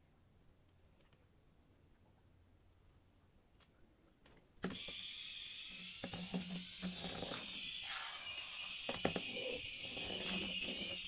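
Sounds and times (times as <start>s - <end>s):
toy airplane whirring and rattling: 4.7s - 11.0s.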